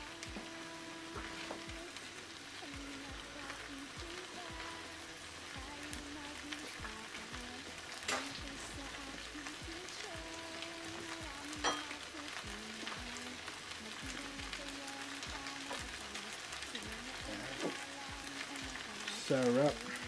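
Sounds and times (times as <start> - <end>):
faint background music: 0.0 - 20.0
food sizzling in a wok: 0.0 - 20.0.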